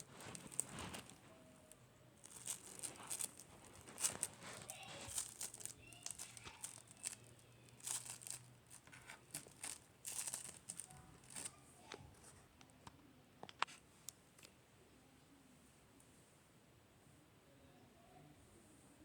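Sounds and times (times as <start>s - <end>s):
slime crackling and popping: 0.0s - 11.6s.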